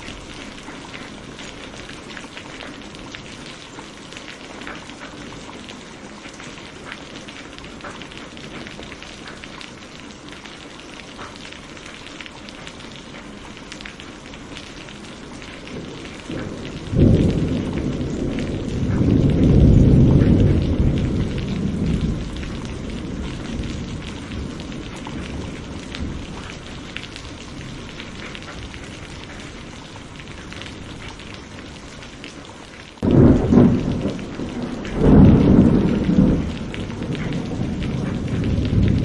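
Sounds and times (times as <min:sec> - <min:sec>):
steady rain: 0:00.0 - 0:39.0
low rumble of thunder: 0:14.6 - 0:32.2, 0:33.0 - 0:39.0.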